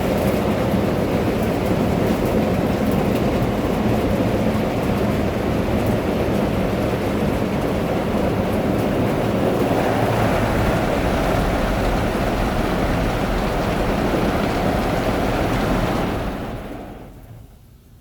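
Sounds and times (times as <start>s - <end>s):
car wash spraying and scrubbing: 8.3s - 17.4s.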